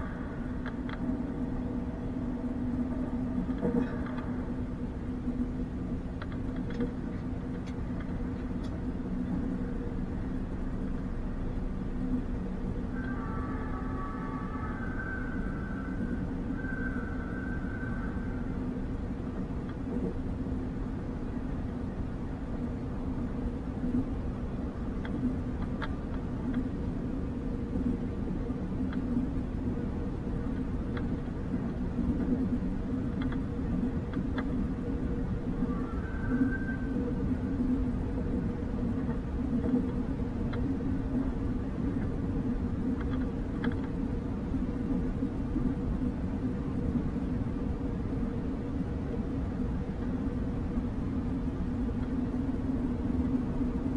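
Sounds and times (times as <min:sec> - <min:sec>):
thin high whine: 0:00.0 - 0:25.5, 0:26.4 - 0:53.9
faint steady hum: 0:00.0 - 0:53.9
train rumble: 0:00.0 - 0:53.9
light clicks: 0:43.0 - 0:44.0.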